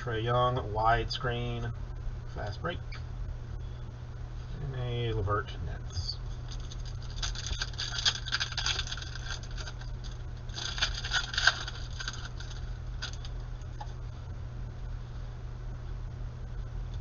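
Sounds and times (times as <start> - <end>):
steady low hum: 0.0 - 17.0
cards and wrappers crackling: 6.2 - 14.0.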